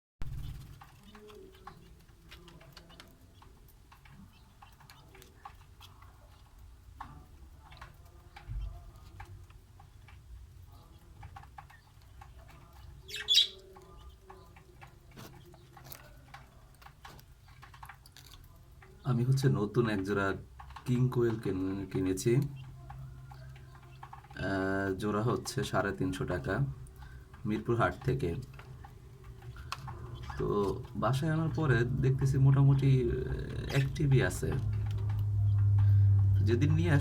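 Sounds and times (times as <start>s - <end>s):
quail chirping softly: 0.2s - 37.0s
low steady hum: 26.6s - 37.0s.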